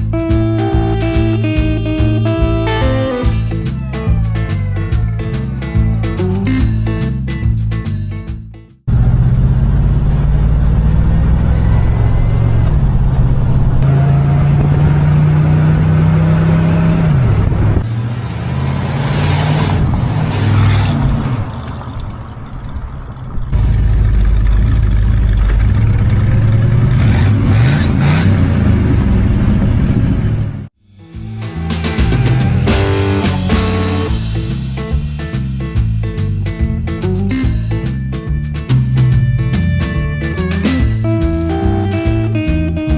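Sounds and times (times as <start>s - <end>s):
car engine revving: 8.9s - 22.4s, 23.5s - 36.3s.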